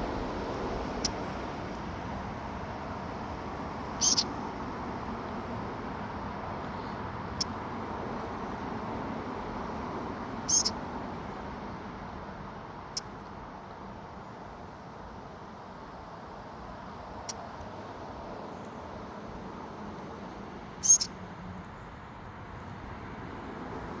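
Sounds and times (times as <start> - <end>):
steady rushing noise: 0.0 - 24.0
bird chirping: 4.0 - 4.3, 10.5 - 10.8, 20.8 - 21.1.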